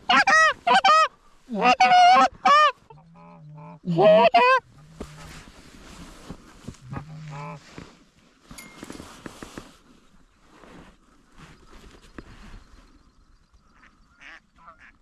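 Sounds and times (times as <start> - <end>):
goose honking: 0.0 - 5.3, 13.8 - 15.0.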